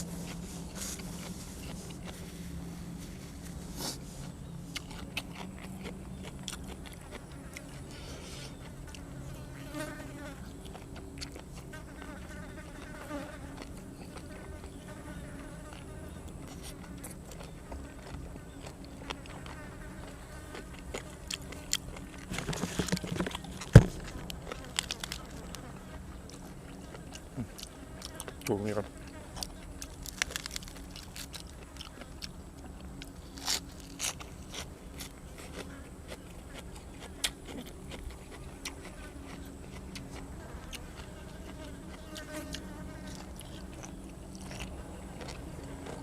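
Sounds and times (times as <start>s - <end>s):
clicks and crunches of eating: 0.0s - 46.0s
fly buzzing: 40.2s - 43.7s.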